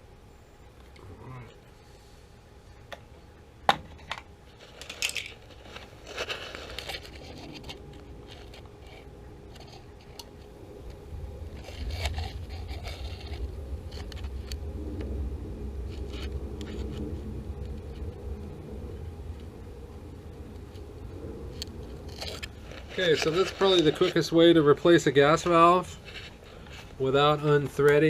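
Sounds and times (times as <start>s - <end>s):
low steady rumble: 0.0s - 28.0s
tools clicking and scraping: 4.6s - 10.5s.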